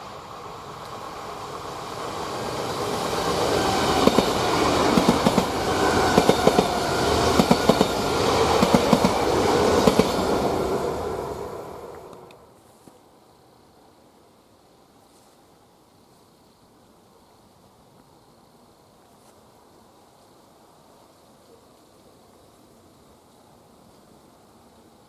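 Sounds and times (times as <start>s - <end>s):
passenger train running noise: 0.0s - 12.5s.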